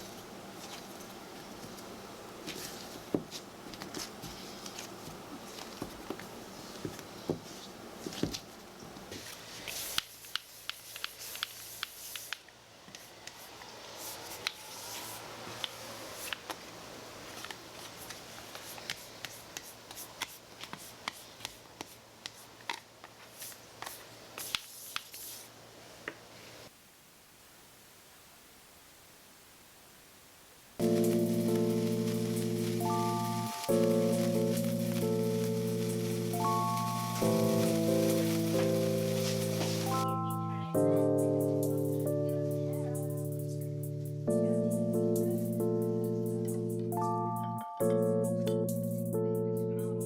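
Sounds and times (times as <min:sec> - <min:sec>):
faint steady hum: 0:25.4 - 0:47.8.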